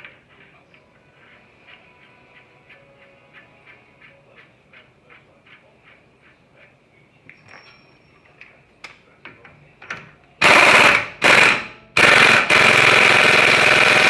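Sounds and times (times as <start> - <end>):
air impact wrench hammering: 10.4 - 14.0.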